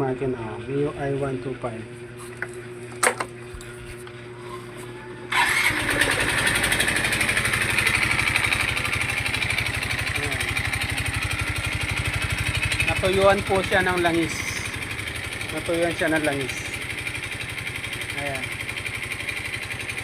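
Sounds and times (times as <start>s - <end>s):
scooter engine idling with knock: 2.4s - 3.4s, 6.1s - 20.0s.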